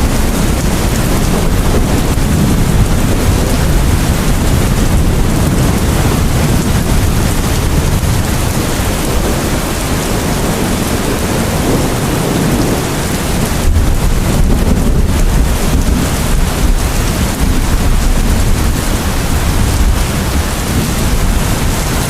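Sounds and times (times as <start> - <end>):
deep low rumble: 0.0 - 9.9
heavy rain: 0.0 - 22.0.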